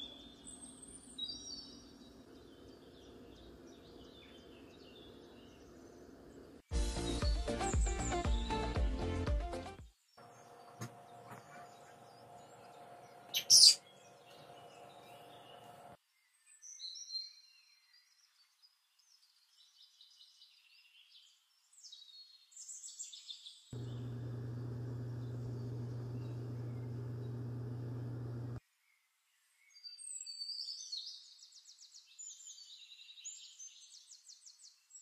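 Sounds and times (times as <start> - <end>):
small birds chirping: 0.0 - 8.8, 10.0 - 29.0
faint background hum: 23.8 - 28.6
low electrical hum: 23.8 - 28.6.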